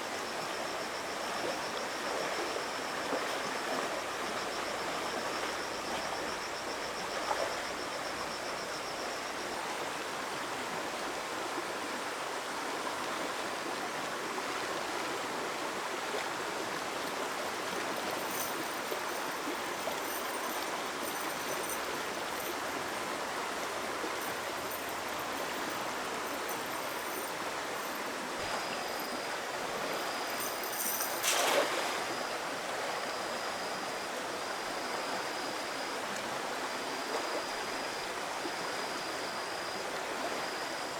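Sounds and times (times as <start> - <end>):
stream water flowing: 9.7 - 40.9
water splash: 31.2 - 32.2.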